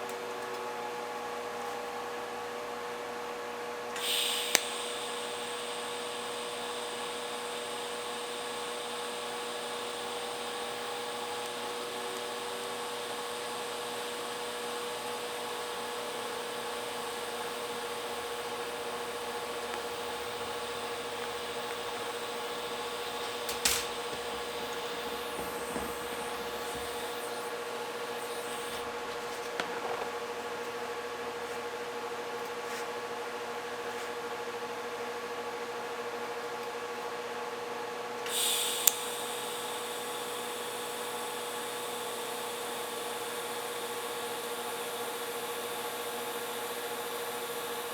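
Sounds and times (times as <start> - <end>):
machine hum and hiss: 3.6 - 35.2, 38.0 - 47.9
sharp click: 4.0 - 6.4, 17.2 - 27.5, 38.2 - 39.2.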